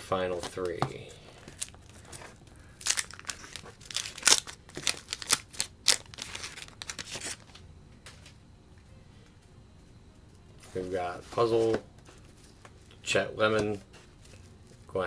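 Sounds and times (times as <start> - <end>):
paper card pack crinkling: 0.0 - 7.6, 10.7 - 15.0.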